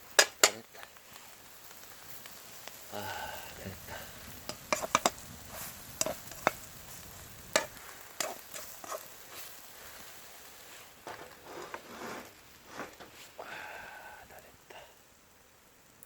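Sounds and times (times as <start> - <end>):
pancake sizzling in a frying pan: 0.0 - 16.0
sharp clicks and taps: 4.4 - 5.2.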